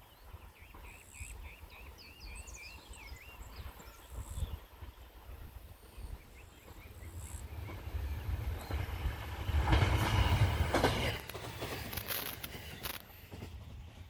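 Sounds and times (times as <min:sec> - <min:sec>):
electric train passing: 0:05.1 - 0:14.0
wheels clacking over rail joints: 0:06.5 - 0:14.0.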